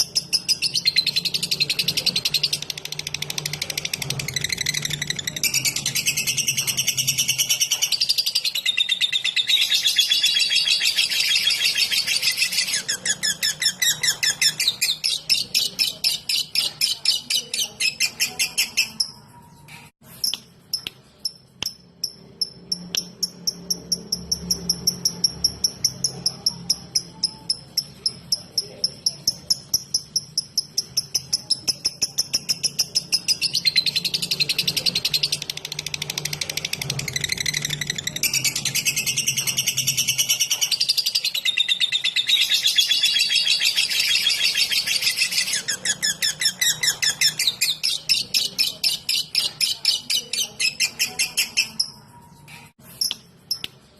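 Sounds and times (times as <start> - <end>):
lovebird sharp ticks: 20.2 - 26.1.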